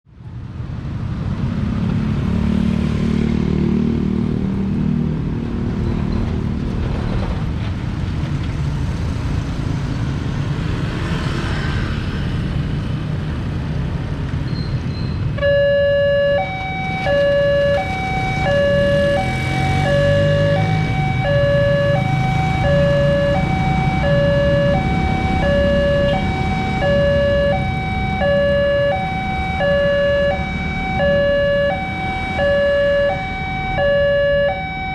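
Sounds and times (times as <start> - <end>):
road traffic engines: 0.0 - 34.9
two-tone crossing alarm: 15.4 - 34.9.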